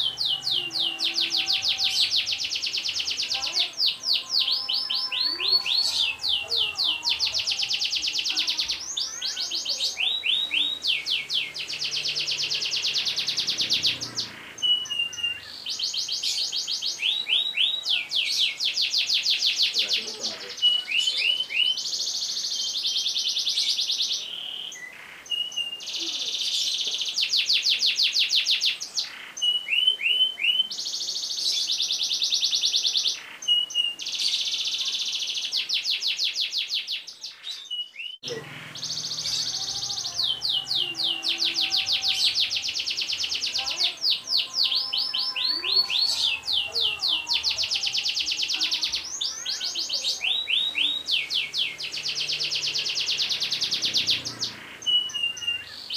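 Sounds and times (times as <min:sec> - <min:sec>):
canary singing rolling trills: 0:00.0 - 0:55.9.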